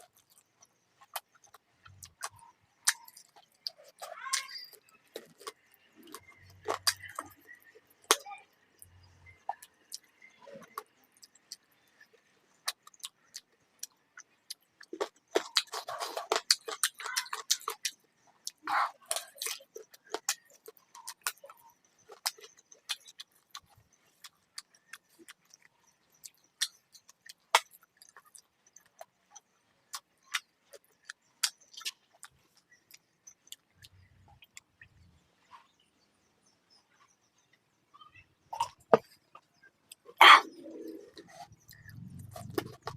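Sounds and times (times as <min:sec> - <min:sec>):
person chewing with lip smacks: 0:00.0 - 0:04.1, 0:38.6 - 0:42.9.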